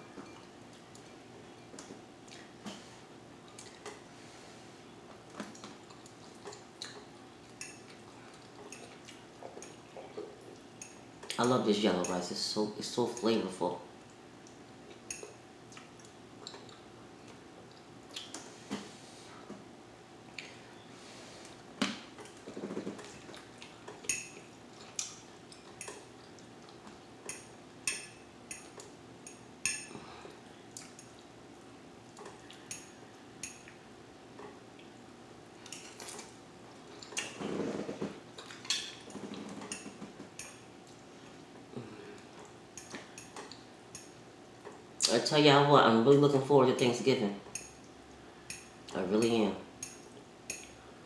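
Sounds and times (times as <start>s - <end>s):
faint steady hum: 0.0s - 51.0s
cutlery clinking on a plate: 24.0s - 24.5s, 38.7s - 40.6s.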